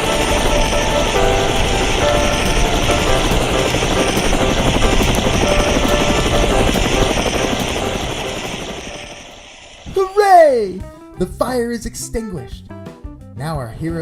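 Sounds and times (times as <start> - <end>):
helicopter rotor chop: 0.0 - 10.8.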